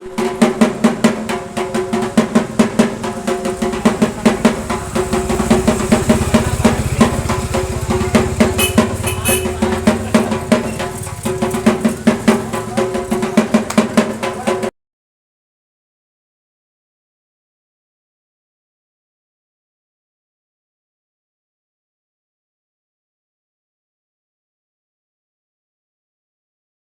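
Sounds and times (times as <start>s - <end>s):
fast drumming: 0.0s - 14.7s.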